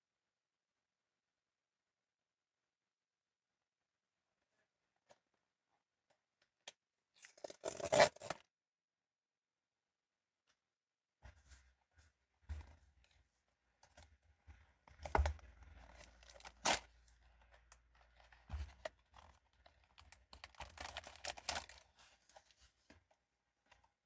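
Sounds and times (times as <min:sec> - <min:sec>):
packaging tearing and crinkling: 0:07.3 - 0:08.4, 0:15.9 - 0:16.9, 0:19.9 - 0:21.8.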